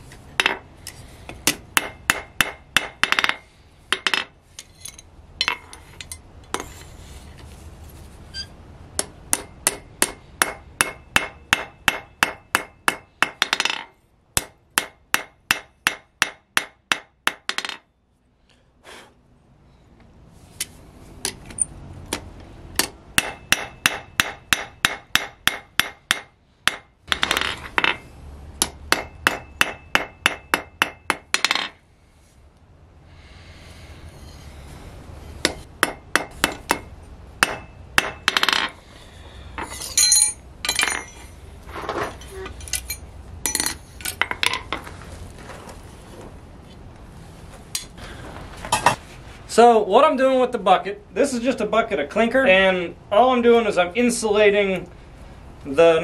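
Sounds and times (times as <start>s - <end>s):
hammer striking steel on an anvil: 1.4s - 6.6s, 9.0s - 17.8s, 22.8s - 28.0s, 28.6s - 31.7s, 35.4s - 38.7s.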